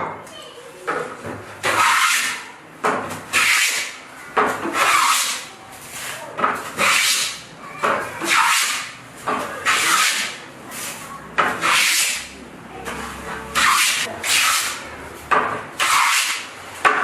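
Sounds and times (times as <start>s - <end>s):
hand tool rasping on wood: 1.6s - 2.5s, 3.3s - 4.0s, 4.6s - 5.5s, 6.8s - 7.5s, 8.2s - 9.0s, 9.6s - 10.4s, 11.4s - 12.4s, 13.6s - 14.8s, 15.8s - 16.5s.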